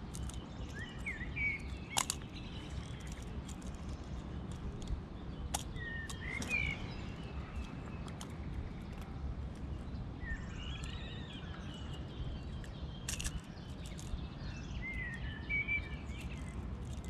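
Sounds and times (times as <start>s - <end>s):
low outdoor rumble: 0.0s - 17.0s
small birds chirping: 0.0s - 17.0s
sharp clicks: 0.1s - 3.9s.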